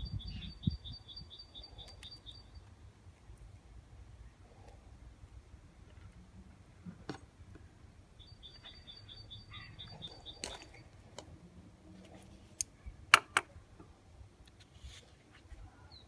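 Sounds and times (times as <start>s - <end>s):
bird chirping: 0.0s - 2.8s, 8.1s - 11.0s.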